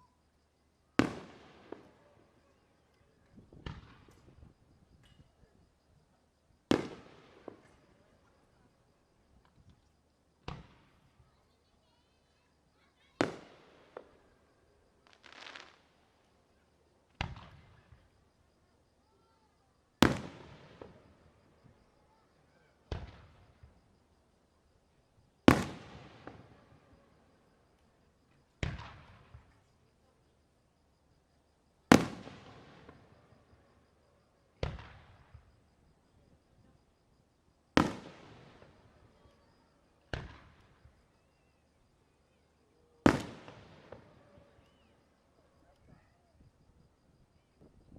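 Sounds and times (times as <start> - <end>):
firework shells bursting: 15.0 - 15.9.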